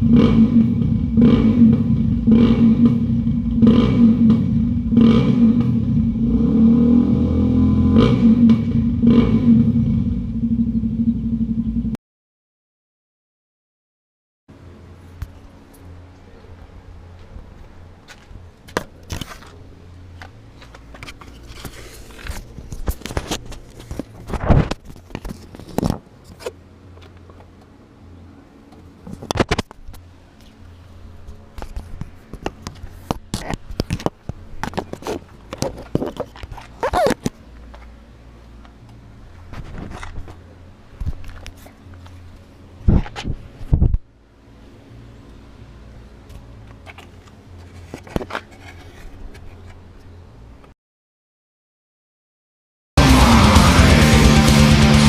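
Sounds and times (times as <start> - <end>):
motorcycle engine running: 0.0 - 12.0, 53.0 - 55.0
clicks rustles and scrapes: 18.1 - 19.6, 20.2 - 27.7, 31.2 - 38.0, 39.4 - 40.4, 46.3 - 50.1.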